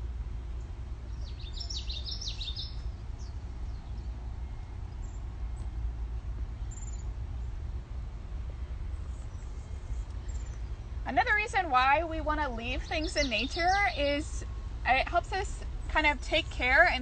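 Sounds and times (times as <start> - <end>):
steady low rumble: 0.0 - 17.0
bird twittering: 1.1 - 4.0.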